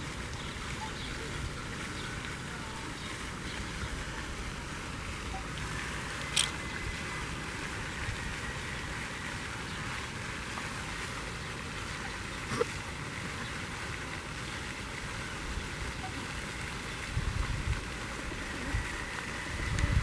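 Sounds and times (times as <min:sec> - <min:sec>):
low outdoor background noise: 0:00.0 - 0:20.0
sharp click: 0:06.2 - 0:06.6.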